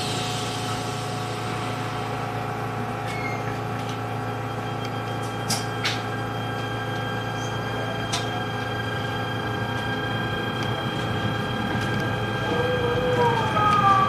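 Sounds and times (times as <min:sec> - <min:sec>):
electric train motors whining: 0:00.0 - 0:14.0
rail rumble: 0:05.2 - 0:14.0.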